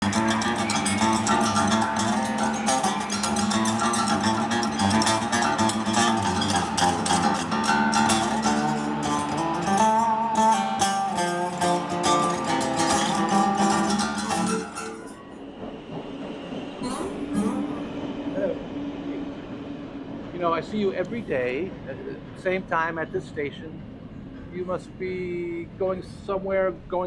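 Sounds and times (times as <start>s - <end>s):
guitar-led music: 0.0s - 15.8s.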